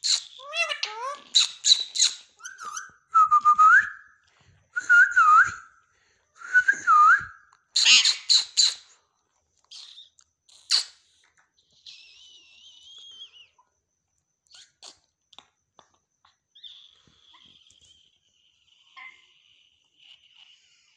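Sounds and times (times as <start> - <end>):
parakeet chattering and whistling: 0.0 - 3.1, 7.8 - 8.9, 9.7 - 11.2.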